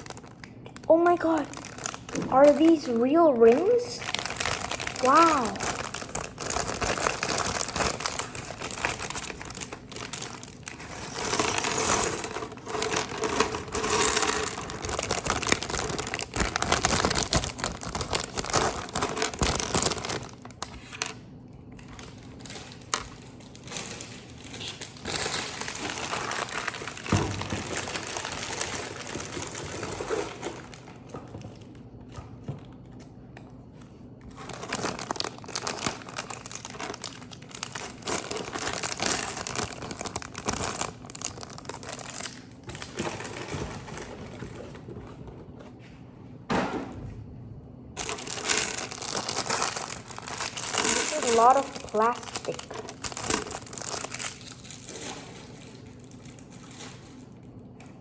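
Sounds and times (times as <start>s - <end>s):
plastic wrapping crinkling: 0.0s - 45.2s, 47.9s - 58.0s.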